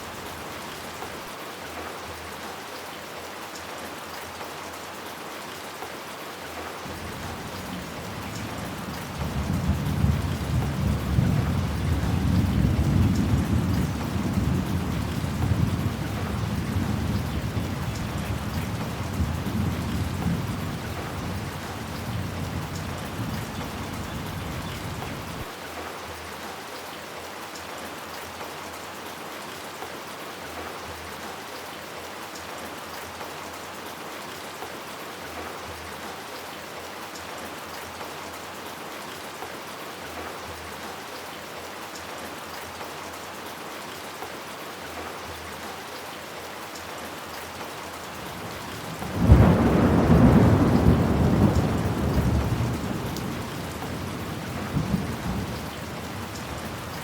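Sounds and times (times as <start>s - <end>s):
heavy rain falling: 0.0s - 57.0s
deep thunder rumble: 48.9s - 56.6s.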